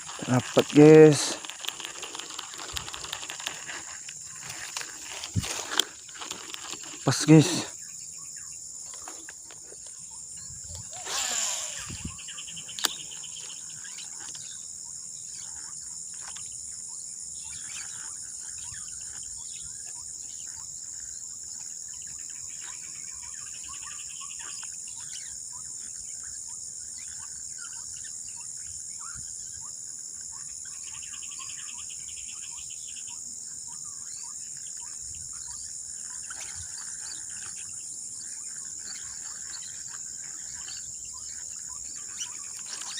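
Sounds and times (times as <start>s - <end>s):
bird chirps: 0.0s - 42.9s
crickets and insects chirring: 0.0s - 42.9s
sharp click: 12.7s - 13.0s.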